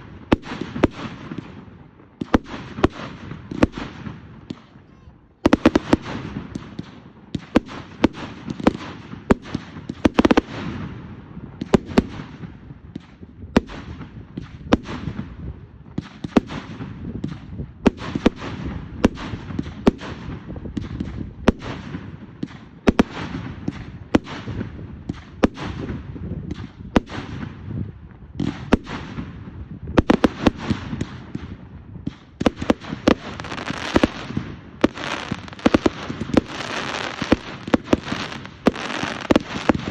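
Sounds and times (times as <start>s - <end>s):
fireworks bangs and pops: 0.0s - 39.9s
fireworks crackling: 28.4s - 39.9s.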